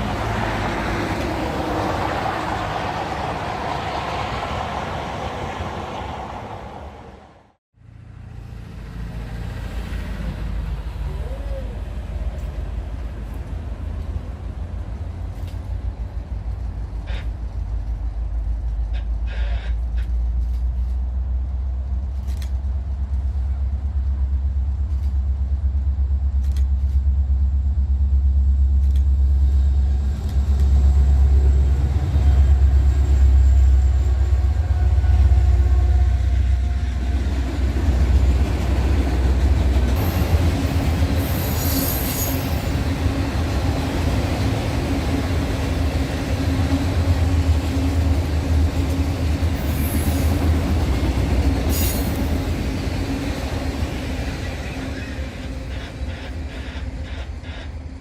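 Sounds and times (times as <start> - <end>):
train rumbling past: 0.0 - 58.0
train wheel squeal: 18.9 - 20.1, 30.8 - 37.3, 39.9 - 43.0, 49.5 - 50.7, 51.5 - 52.6, 54.2 - 58.0.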